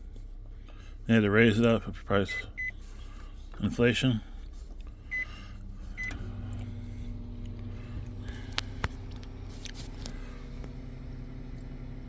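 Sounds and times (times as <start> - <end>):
microwave oven humming: 0.0 - 12.0
microwave keypad beep: 2.3 - 2.8, 5.1 - 5.3.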